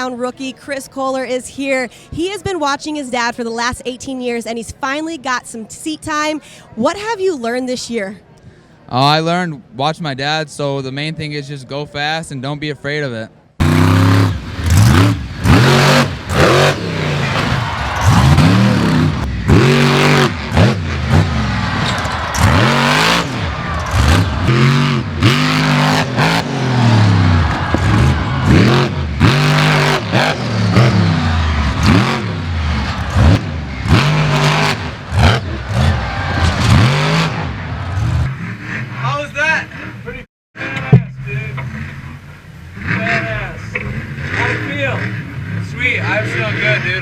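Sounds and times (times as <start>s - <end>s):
truck engines revving hard: 13.6s - 40.2s, 41.4s - 47.0s.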